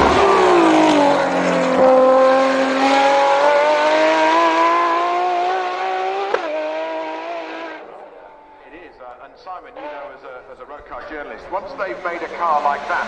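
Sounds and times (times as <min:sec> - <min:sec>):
sports car engine revving: 0:00.0 - 0:08.0.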